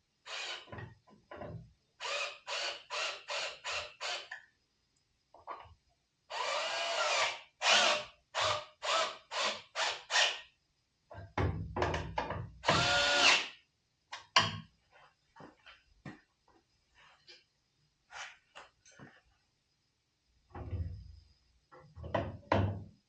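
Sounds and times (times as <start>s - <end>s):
cordless drill running: 0.3s - 0.7s, 2.0s - 4.3s, 6.3s - 10.4s, 12.6s - 13.5s.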